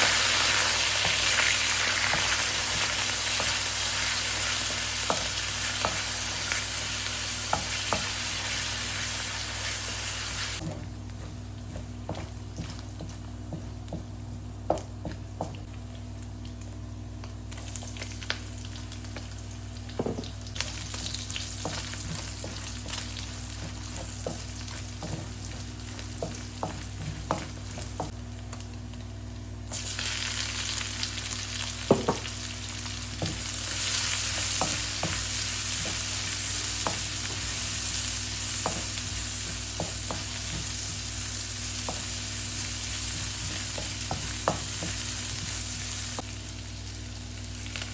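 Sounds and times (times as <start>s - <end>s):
steady low hum: 0.0s - 29.8s
food frying in a pan: 0.0s - 47.9s.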